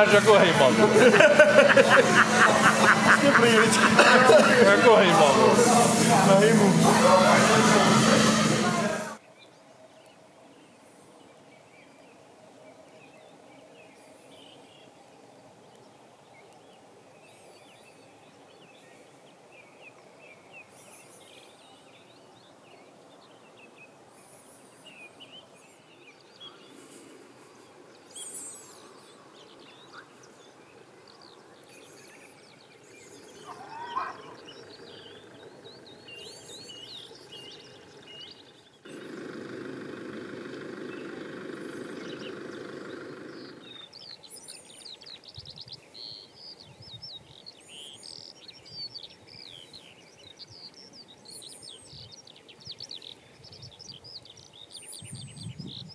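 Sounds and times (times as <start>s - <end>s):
loud steady sound: 0.0s - 9.2s, 38.9s - 43.8s
quiet outdoor background noise: 0.0s - 55.9s
small birds chirping: 9.2s - 55.9s.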